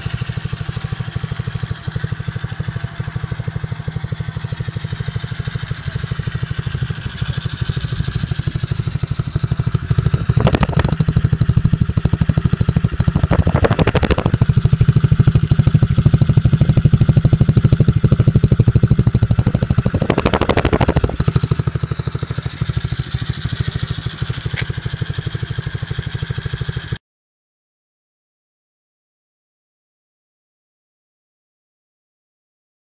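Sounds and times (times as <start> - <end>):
motorbike engine running: 0.0 - 27.0
rushes of noise: 10.1 - 11.1, 12.7 - 14.6, 18.8 - 21.5.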